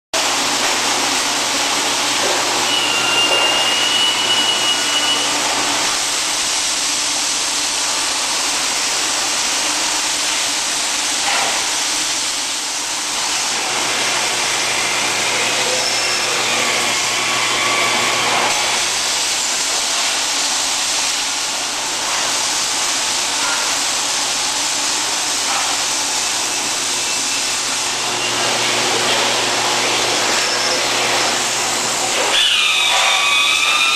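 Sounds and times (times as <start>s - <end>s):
hissing welding machinery: 0.2s - 33.9s
brief high whistle: 2.6s - 5.4s, 32.3s - 33.9s.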